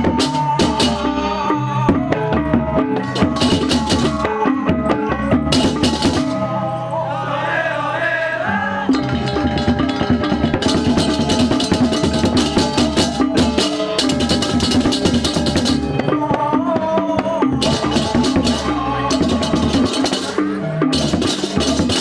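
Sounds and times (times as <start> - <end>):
rapid clashing cymbals: 0.0 - 1.2, 9.0 - 16.0, 17.6 - 22.0
drums: 0.0 - 6.5, 8.9 - 22.0
gongs and metal percussion ringing: 3.0 - 6.5, 8.9 - 16.2, 17.6 - 22.0.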